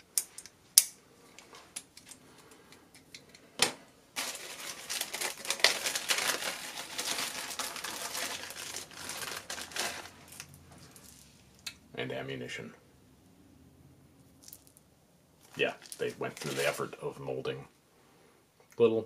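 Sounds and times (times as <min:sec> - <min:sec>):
packaging crinkling and rustling: 0:04.2 - 0:11.4, 0:15.4 - 0:16.9.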